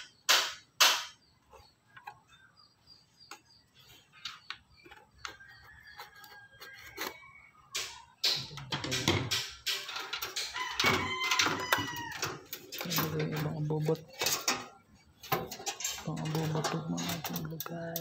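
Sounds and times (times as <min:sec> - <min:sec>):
loud bird calls: 0:00.0 - 0:13.8.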